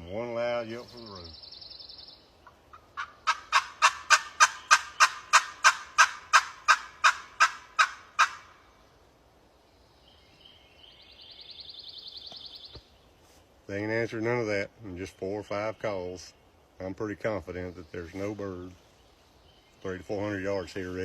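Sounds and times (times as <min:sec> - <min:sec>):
turkey yelps on friction call: 0:02.4 - 0:08.6.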